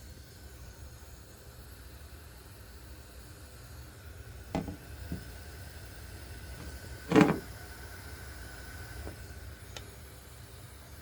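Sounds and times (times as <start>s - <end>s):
low steady hvac hum: 0.0s - 11.0s
rattling knock: 4.6s - 5.2s, 7.1s - 7.5s
light knocks: 4.6s - 5.3s.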